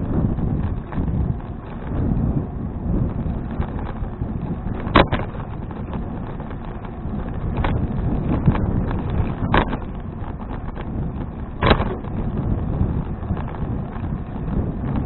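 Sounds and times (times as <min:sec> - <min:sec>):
low road rumble: 0:00.0 - 0:15.0
wind buffeting microphone: 0:00.0 - 0:15.0
sharp knocks and rattles: 0:03.1 - 0:15.0.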